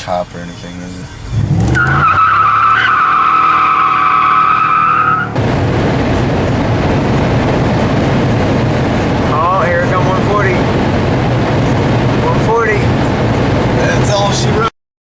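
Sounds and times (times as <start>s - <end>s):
tire squeal: 0.0s - 5.4s
engine and road noise: 0.0s - 14.7s.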